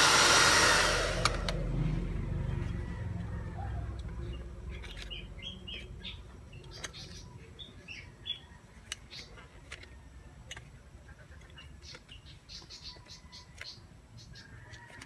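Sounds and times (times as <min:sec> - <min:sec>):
small birds chirping: 0:04.0 - 0:10.0, 0:10.8 - 0:14.9.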